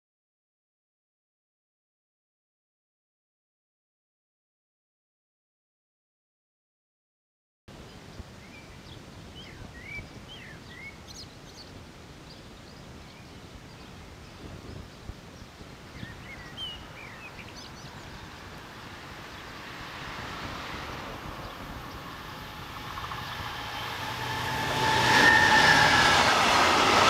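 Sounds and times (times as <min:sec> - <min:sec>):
outdoor background noise: 0:07.7 - 0:27.0
small birds chirping: 0:07.8 - 0:19.7
distant train rail noise: 0:16.8 - 0:27.0.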